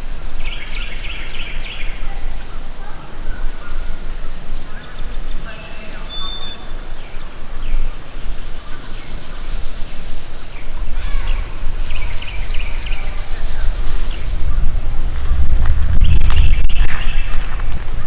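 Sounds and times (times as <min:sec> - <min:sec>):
wild birds chirping: 0:00.0 - 0:18.0
steady low rumble: 0:10.8 - 0:18.0.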